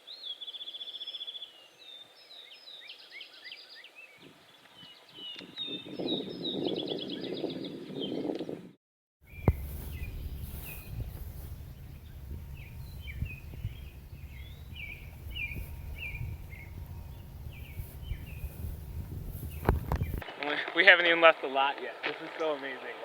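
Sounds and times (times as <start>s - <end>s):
low rumble on microphone: 9.3s - 20.2s
songbird short descending notes: 9.3s - 20.2s.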